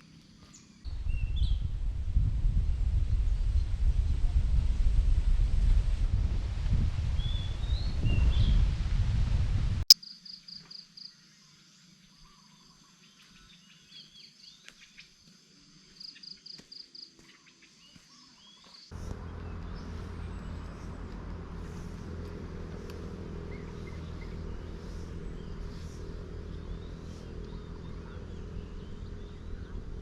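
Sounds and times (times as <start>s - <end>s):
high pulsed bird or insect call: 9.9s - 20.9s
steady low hum: 18.9s - 30.0s.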